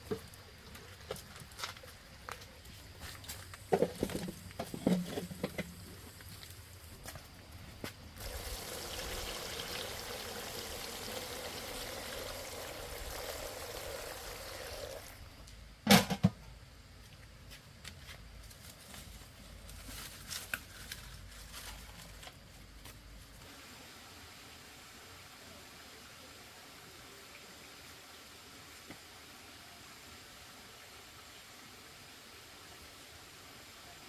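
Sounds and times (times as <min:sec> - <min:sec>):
water pouring: 0:08.2 - 0:15.2.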